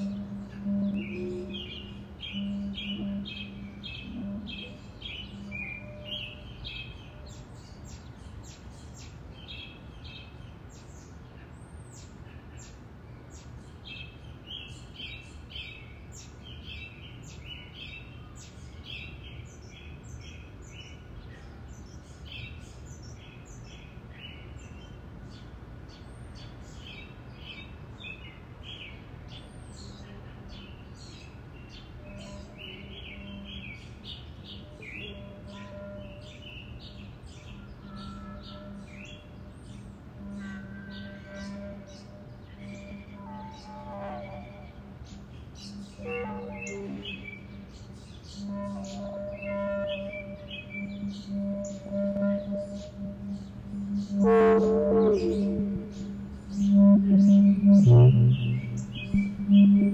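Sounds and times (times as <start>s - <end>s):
low held tone: 0.0s - 6.6s, 34.6s - 59.9s
songbirds chirping and trilling: 0.0s - 59.9s
low rumble: 52.1s - 59.9s.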